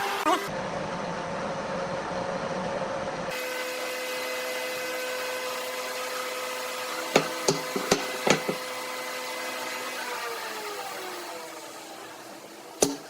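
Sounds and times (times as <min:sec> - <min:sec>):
hammer tapping on wood: 0:07.2 - 0:08.6.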